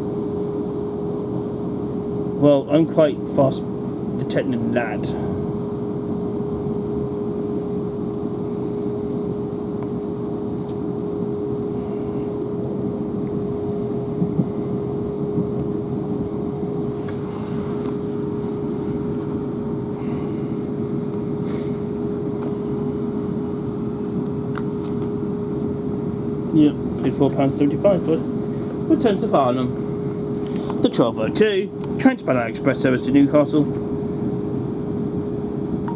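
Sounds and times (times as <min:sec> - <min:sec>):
constant hum: 0:00.0 - 0:35.9
train interior rumble: 0:12.9 - 0:23.5.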